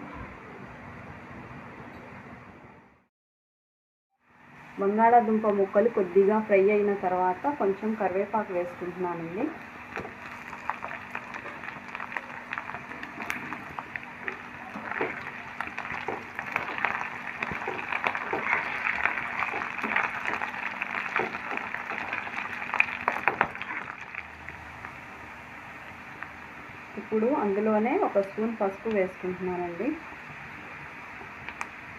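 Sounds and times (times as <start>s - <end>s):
food sizzling in hot oil: 9.4s - 26.5s.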